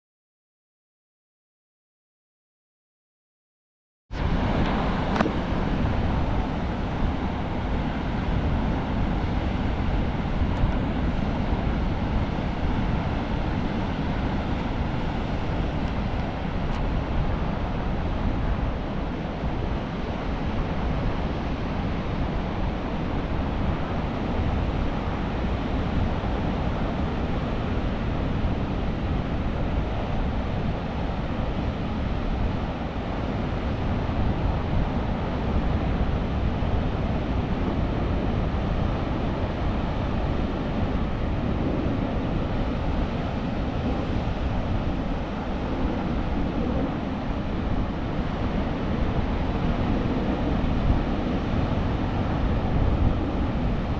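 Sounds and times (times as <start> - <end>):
wind buffeting microphone: 4.1 - 53.9
surf rushing along shore: 4.2 - 53.9.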